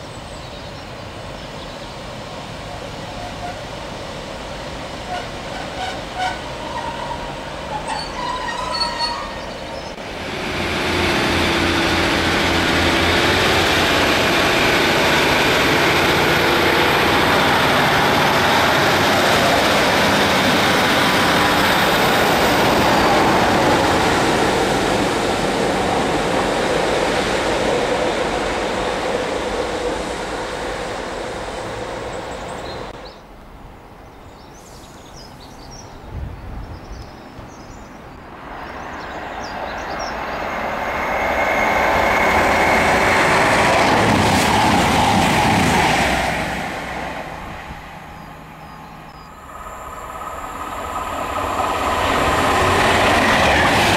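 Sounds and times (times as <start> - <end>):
diesel train approaching: 0.0 - 36.1, 36.7 - 53.9
diesel train passing: 0.0 - 53.9.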